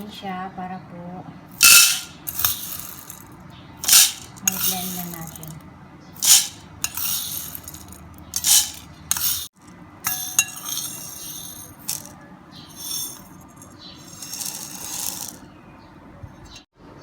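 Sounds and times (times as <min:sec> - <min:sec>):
dry beans rattling into glass jar: 0:01.6 - 0:03.2, 0:03.8 - 0:05.6, 0:06.2 - 0:09.5, 0:10.1 - 0:12.1, 0:12.7 - 0:15.4
clink against glass: 0:10.1 - 0:12.1.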